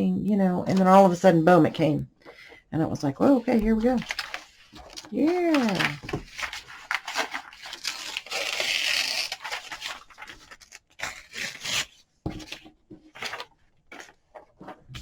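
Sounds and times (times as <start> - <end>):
paper rasping: 4.0 - 12.5.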